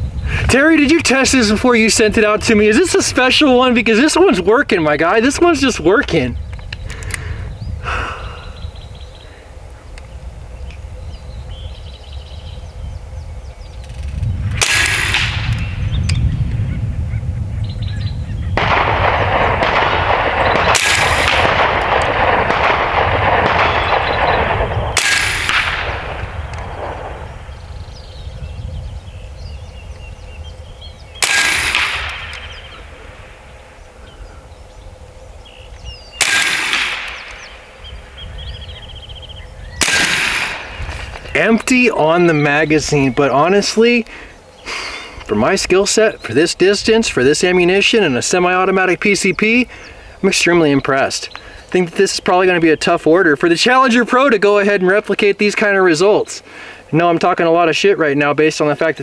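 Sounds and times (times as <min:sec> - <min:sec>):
air rifle shots: 0:13.8 - 0:16.3, 0:18.6 - 0:28.4, 0:30.0 - 0:49.9.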